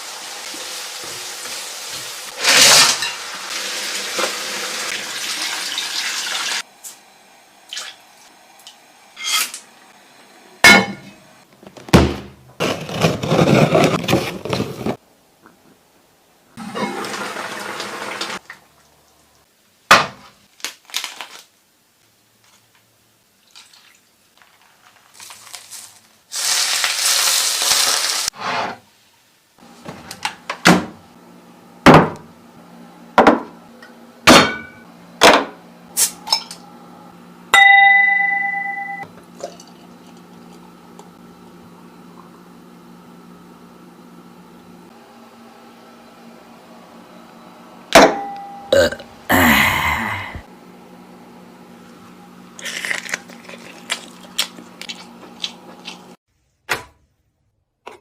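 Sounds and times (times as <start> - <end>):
appliance hum: 0.0 - 19.5, 29.6 - 56.2.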